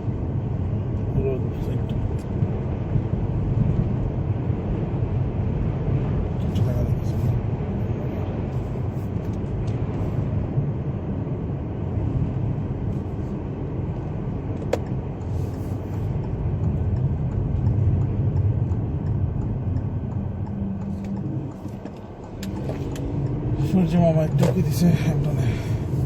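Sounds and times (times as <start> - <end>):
car tyres rumbling: 0.0 - 26.0
wind on car body: 1.9 - 6.7.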